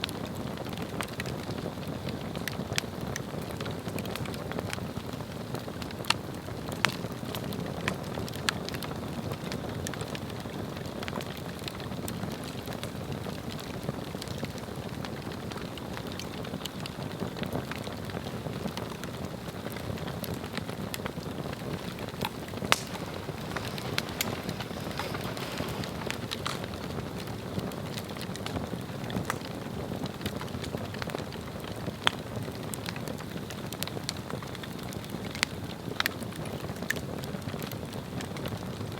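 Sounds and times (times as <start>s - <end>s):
fire crackles and pops: 0.0s - 38.9s
rush of flame: 18.0s - 29.5s.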